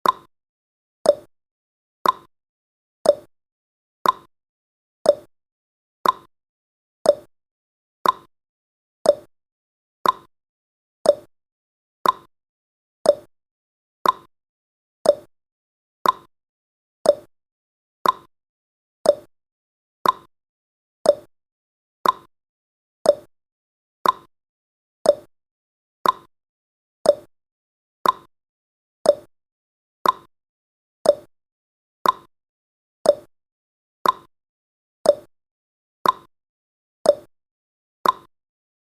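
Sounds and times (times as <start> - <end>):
timer ticking: 0.0 - 0.3, 1.1 - 1.3, 2.0 - 2.3, 3.0 - 3.3, 4.0 - 4.3, 5.0 - 5.3, 6.0 - 6.3, 7.0 - 7.3, 8.0 - 8.3, 9.0 - 9.3, 10.0 - 10.3, 11.0 - 11.3, 12.0 - 12.3, 13.0 - 13.3, 14.0 - 14.3, 15.0 - 15.3, 16.0 - 16.3, 17.0 - 17.3, 18.0 - 18.3, 19.0 - 19.3, 20.0 - 20.3, 21.0 - 21.3, 22.0 - 22.3, 23.0 - 23.3, 24.0 - 24.3, 25.0 - 25.3, 26.0 - 26.3, 27.0 - 27.3, 28.0 - 28.3, 29.0 - 29.3, 30.0 - 30.3, 31.0 - 31.3, 32.0 - 32.3, 33.0 - 33.3, 34.0 - 34.3, 35.0 - 35.3, 36.0 - 36.3, 37.1 - 37.3, 38.0 - 38.3.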